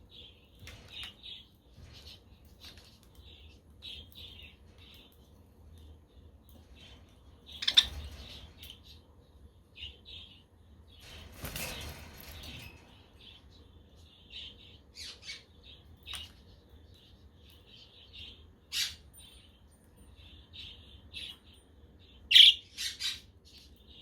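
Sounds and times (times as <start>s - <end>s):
budgerigars chirping and chattering: 7.5s - 8.4s, 22.2s - 23.3s
sharp loud bird calls: 22.3s - 23.2s.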